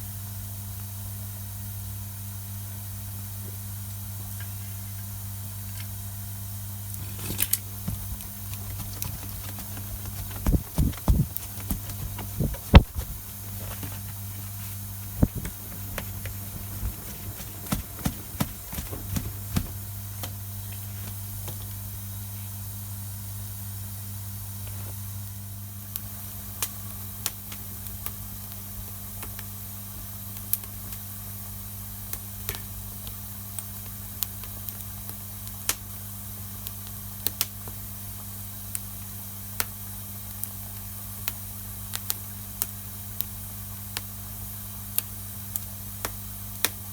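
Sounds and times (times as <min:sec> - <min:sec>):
steady low hum: 0:00.0 - 0:29.2
campfire crackling: 0:06.9 - 0:19.8.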